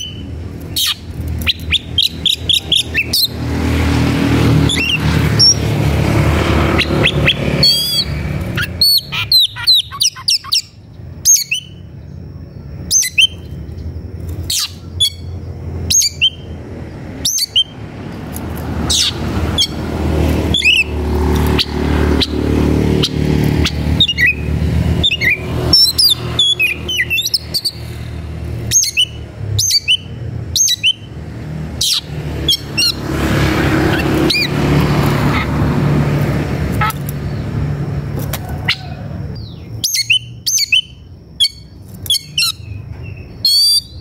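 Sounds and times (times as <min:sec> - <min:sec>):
low vehicle engine rumble: 0:00.0 - 0:44.0
bird calling in sharp notes: 0:06.7 - 0:11.9, 0:20.5 - 0:27.9.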